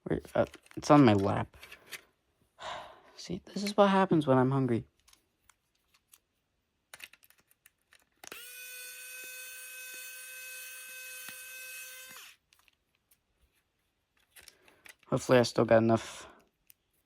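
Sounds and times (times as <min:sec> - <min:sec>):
handheld tool motor running: 0:08.2 - 0:12.4.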